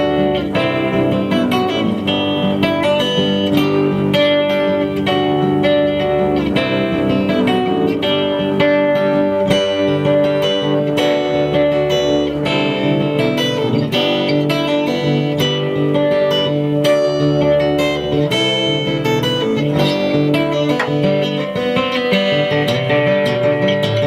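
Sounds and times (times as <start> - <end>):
instrumental band with guitars: 0.0 - 24.0.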